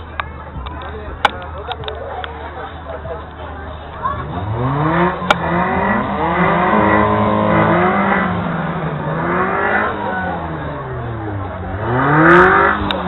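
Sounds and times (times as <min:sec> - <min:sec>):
car engine revving: 0:03.3 - 0:13.0.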